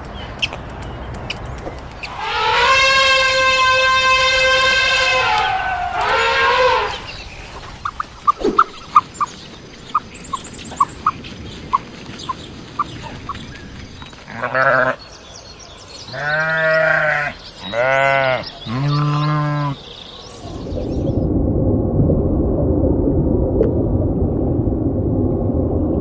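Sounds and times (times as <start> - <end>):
goat bleating: 14.3 - 15.0, 16.2 - 19.8.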